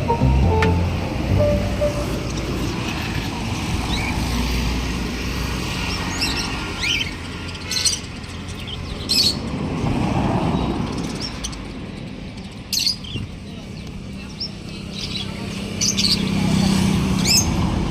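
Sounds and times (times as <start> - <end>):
cage birds chirping: 5.8 - 9.6, 10.5 - 17.6.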